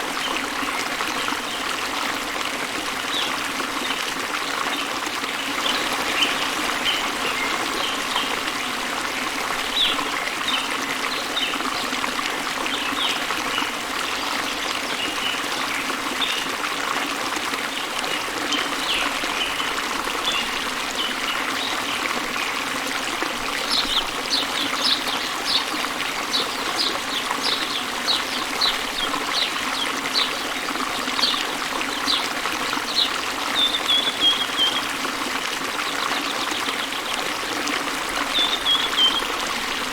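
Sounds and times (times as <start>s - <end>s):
birds chirping: 32.9s - 34.9s, 38.2s - 39.9s.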